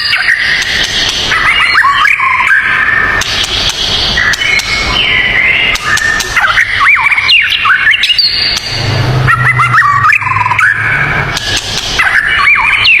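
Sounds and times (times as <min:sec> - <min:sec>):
songbirds whistling: 0:00.0 - 0:13.0
low steady hum: 0:08.2 - 0:12.1.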